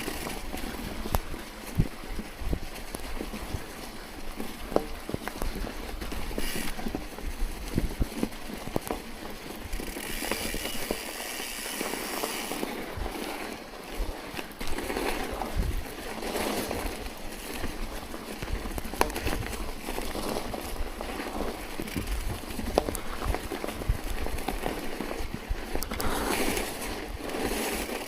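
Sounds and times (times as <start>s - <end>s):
wind noise on microphone: 0.0s - 9.0s, 12.4s - 28.0s
bicycle tyres crunching snow: 0.0s - 28.0s
bike clicks and knocks: 0.0s - 28.0s.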